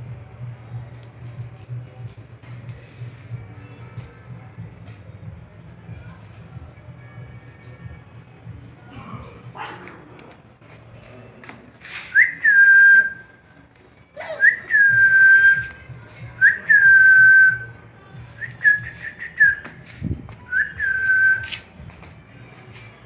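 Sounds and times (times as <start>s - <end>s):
person whistling: 12.0s - 13.4s, 14.2s - 15.7s, 16.4s - 17.7s, 18.4s - 19.7s, 20.5s - 21.5s.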